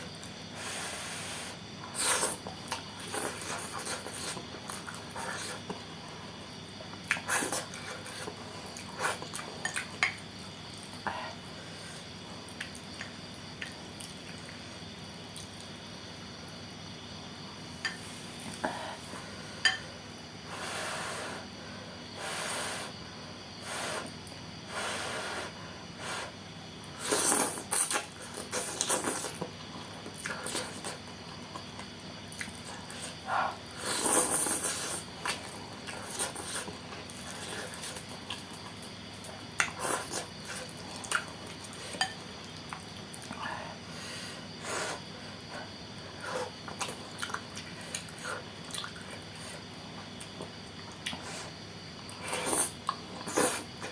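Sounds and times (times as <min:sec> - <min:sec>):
slurping and chewing noodles: 0:01.9 - 0:05.8, 0:26.9 - 0:43.5, 0:46.1 - 0:53.9.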